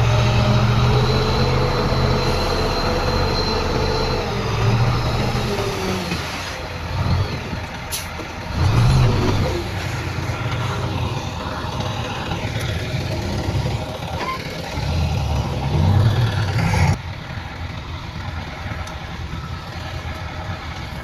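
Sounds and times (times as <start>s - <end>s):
diesel earthmoving machinery running: 0.0s - 21.0s
thin high whine: 0.6s - 5.2s.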